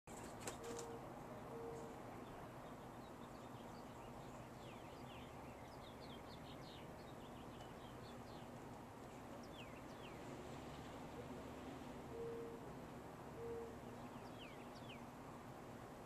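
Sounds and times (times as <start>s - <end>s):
bird chirping: 0.1s - 10.8s, 13.4s - 15.1s
steady outdoor hiss: 0.1s - 16.0s.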